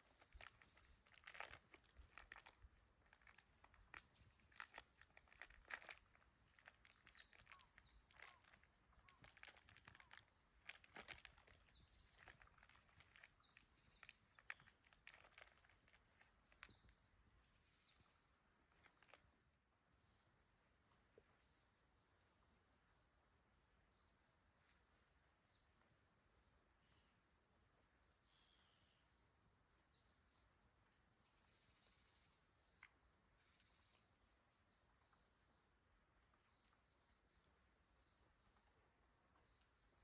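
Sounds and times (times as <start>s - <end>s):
soft crackles and crunches: 0.0s - 19.5s
crickets chirring: 0.0s - 40.0s.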